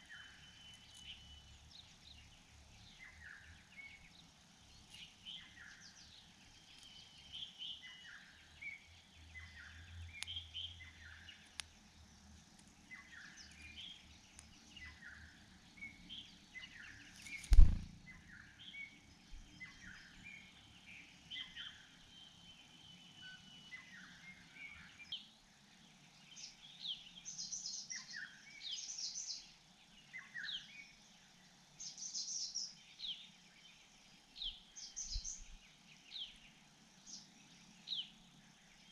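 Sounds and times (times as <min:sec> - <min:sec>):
small birds chirping: 0:00.0 - 0:38.9
loud thump: 0:17.5 - 0:17.9.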